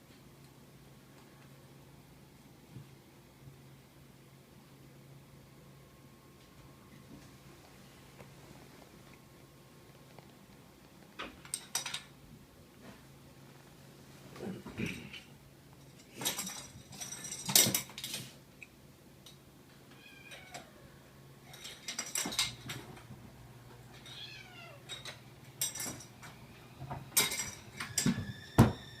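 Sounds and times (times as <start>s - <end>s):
kitten meows: 24.1s - 24.9s.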